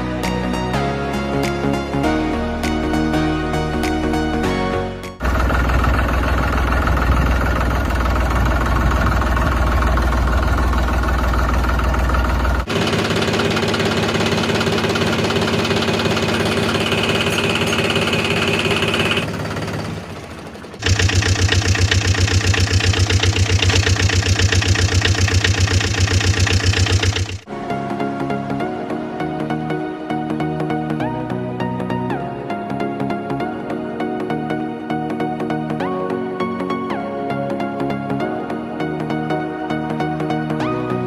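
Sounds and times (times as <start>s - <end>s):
tractor engine chugging: 5.2s - 27.5s.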